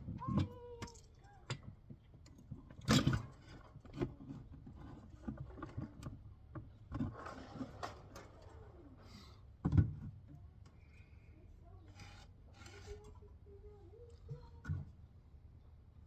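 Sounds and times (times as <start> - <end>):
scraping and rattling: 0.0 - 9.3, 11.7 - 14.9.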